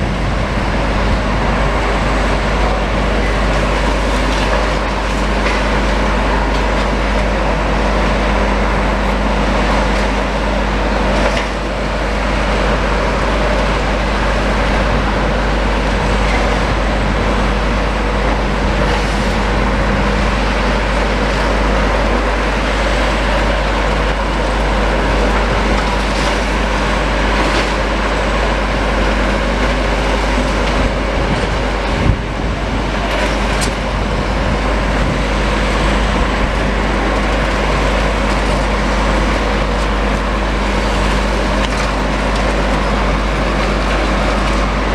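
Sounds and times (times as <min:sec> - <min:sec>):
diesel engines running under load: 0:00.0 - 0:44.9.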